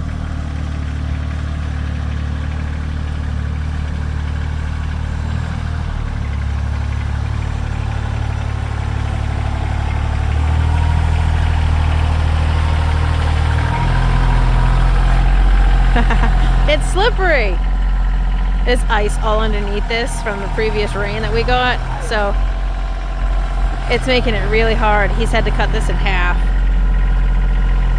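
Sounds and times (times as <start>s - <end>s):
tractor engine running: 0.0s - 27.9s.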